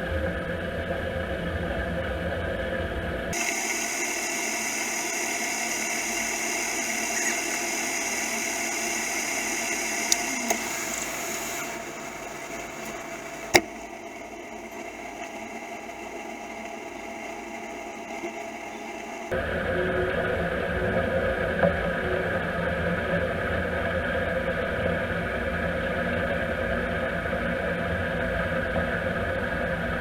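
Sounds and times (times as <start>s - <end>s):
combine harvester droning: 2.9s - 25.5s
sharp click: 12.8s - 13.8s.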